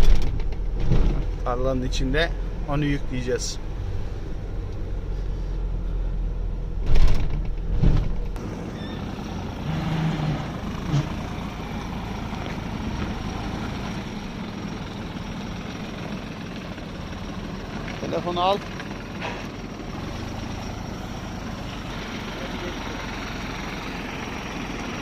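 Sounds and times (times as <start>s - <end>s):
truck engine rumbling: 0.0s - 25.0s.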